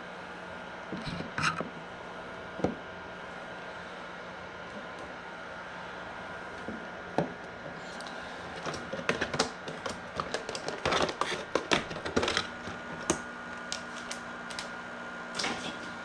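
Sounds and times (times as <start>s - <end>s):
steady low hum: 0.0s - 16.0s
plastic incubator clicks and rattles: 8.6s - 14.7s.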